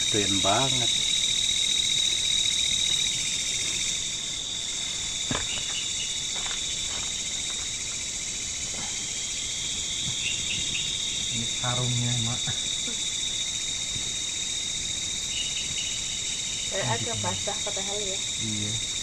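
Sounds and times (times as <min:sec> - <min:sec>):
fast pulsing insect layer: 0:00.0 - 0:19.0
high hiss: 0:00.0 - 0:19.0
insects trilling: 0:00.0 - 0:19.0.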